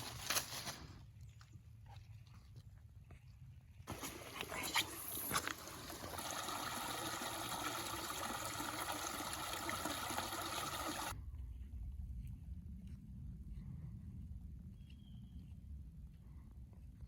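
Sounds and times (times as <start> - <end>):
running water hiss: 3.9 - 11.2.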